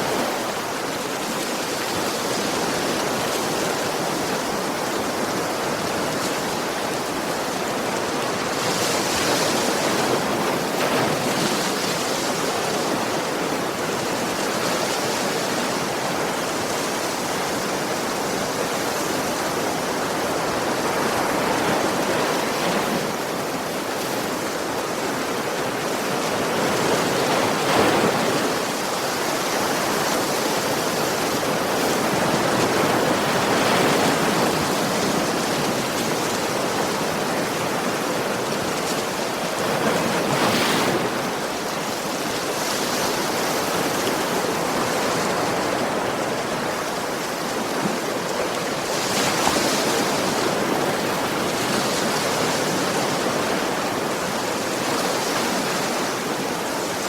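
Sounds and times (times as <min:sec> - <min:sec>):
ocean waves breaking: 0:00.0 - 0:57.0.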